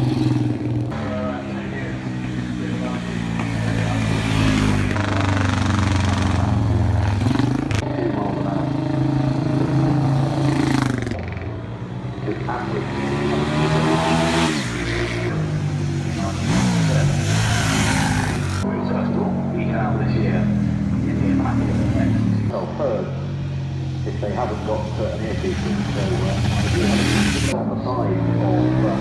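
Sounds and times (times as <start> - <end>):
engine revving hard: 12.2 - 15.4, 16.1 - 18.6, 25.2 - 29.0.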